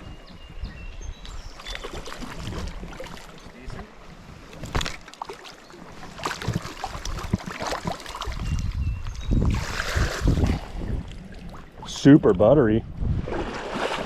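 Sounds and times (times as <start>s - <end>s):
wind rumbling on microphone: 0.0s - 5.0s, 6.4s - 14.0s
stream water splashing: 1.6s - 8.7s, 9.5s - 12.1s, 13.2s - 14.0s.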